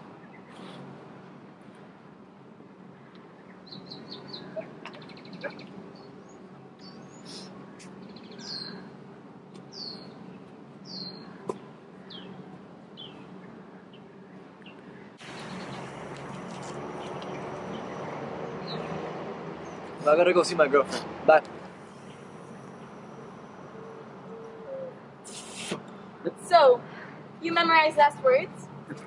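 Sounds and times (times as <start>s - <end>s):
birds chirping: 2.8s - 9.0s, 9.6s - 28.1s
background hiss: 25.1s - 28.4s.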